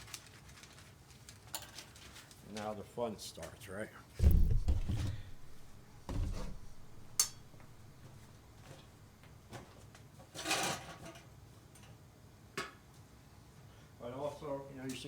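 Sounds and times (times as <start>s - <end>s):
dull knock on work surface: 4.2s - 8.1s.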